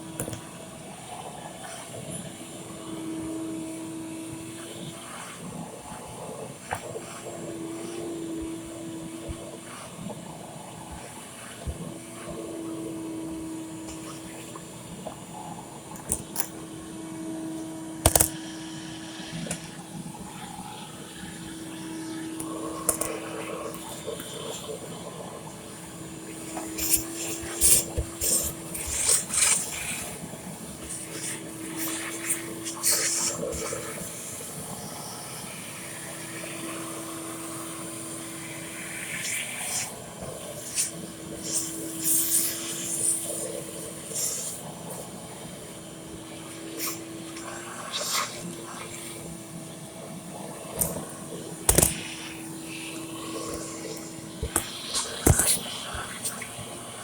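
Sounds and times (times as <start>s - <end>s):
liquid running or spraying: 0.0s - 57.0s
bursts of hissing: 25.7s - 34.7s, 40.6s - 45.0s.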